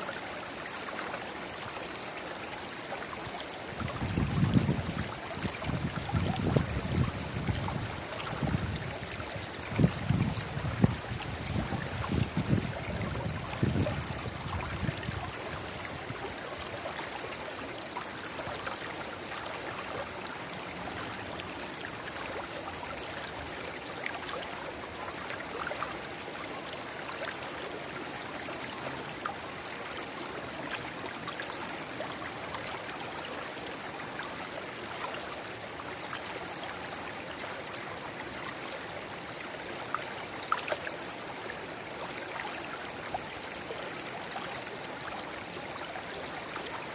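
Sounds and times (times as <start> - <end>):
river water babbling: 0.0 - 46.9
wind rumble on microphone: 3.8 - 16.3.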